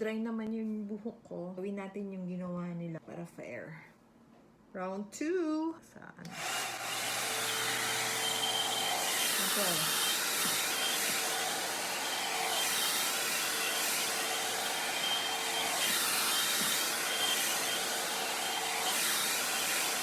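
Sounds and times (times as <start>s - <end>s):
hair dryer blowing air: 6.3s - 20.0s.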